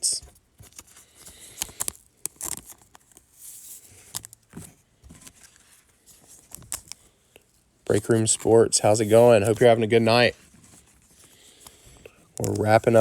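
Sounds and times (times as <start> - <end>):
wrapper rustling: 0.3 - 13.0
trading cards tapping and clicking: 11.6 - 13.0.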